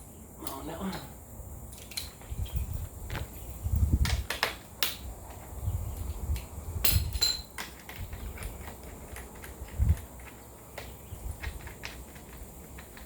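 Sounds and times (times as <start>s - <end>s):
low rumbling handling noise: 5.2s - 13.0s.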